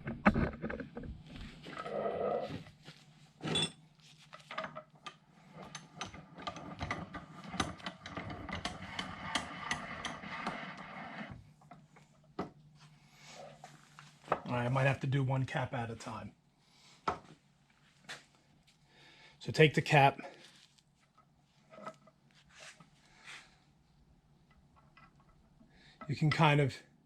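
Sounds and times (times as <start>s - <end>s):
metal clicks and knocks: 4.4s - 10.5s.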